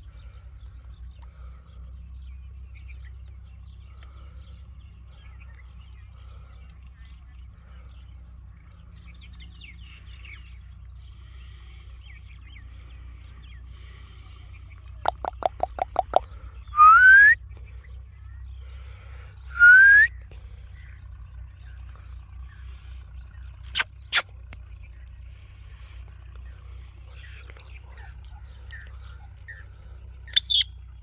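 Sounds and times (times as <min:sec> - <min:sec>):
low steady hum: 0:00.0 - 0:31.0
faint chirping: 0:00.1 - 0:31.0
parrot whistling: 0:16.8 - 0:17.4, 0:19.6 - 0:20.1, 0:30.4 - 0:30.7.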